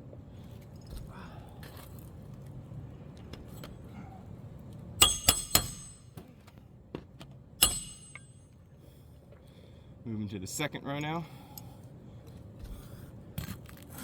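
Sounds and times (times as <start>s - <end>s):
metal tool clinking on roof: 5.0s - 6.2s, 7.6s - 8.4s.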